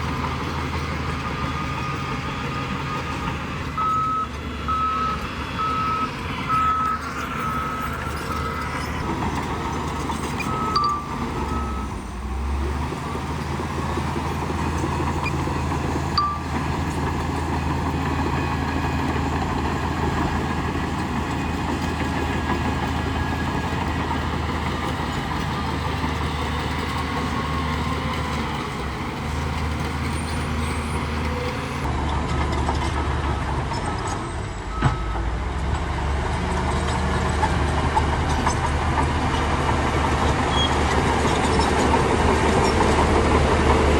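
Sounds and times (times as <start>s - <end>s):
diesel engine droning: 0.0s - 43.9s
short high beeps: 10.5s - 11.9s.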